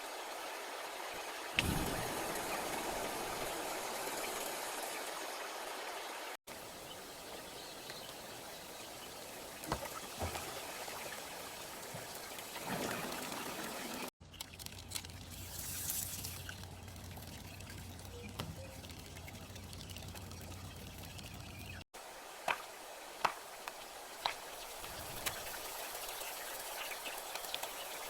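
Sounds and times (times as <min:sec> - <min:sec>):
rain falling: 0:01.1 - 0:05.2.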